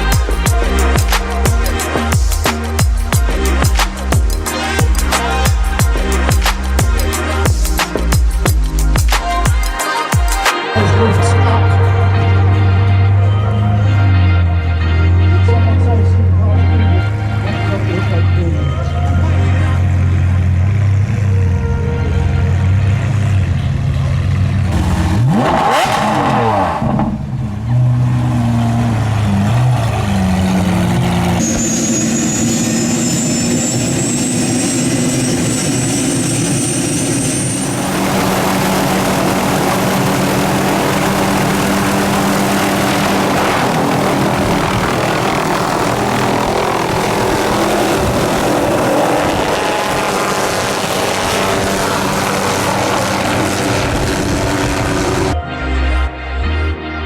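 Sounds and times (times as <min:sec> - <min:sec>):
car engines revving: 0:00.0 - 0:09.5, 0:10.7 - 0:55.4
thin high whine: 0:31.4 - 0:55.4.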